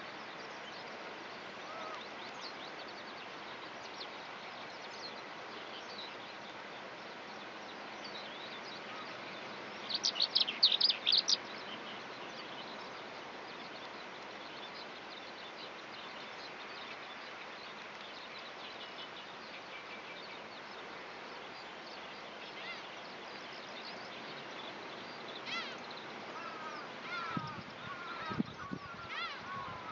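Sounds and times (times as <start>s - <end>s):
steady outdoor hiss: 0.0s - 29.9s
lower bird calls: 1.6s - 3.1s, 23.6s - 29.9s
skylark twittering: 9.8s - 11.7s.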